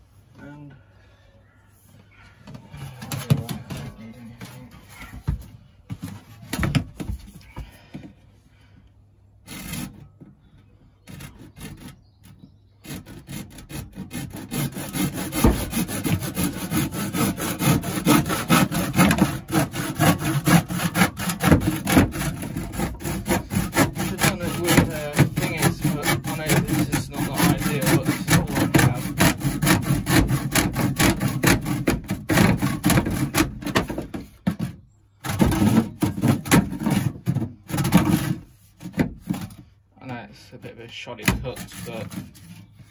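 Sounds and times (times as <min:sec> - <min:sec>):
hand saw cutting: 0:09.4 - 0:10.1, 0:11.0 - 0:39.6, 0:41.1 - 0:42.9.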